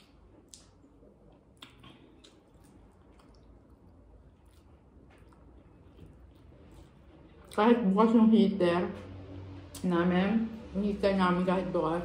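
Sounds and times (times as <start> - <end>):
faint chewing with mouth clicks: 0.0 - 7.7.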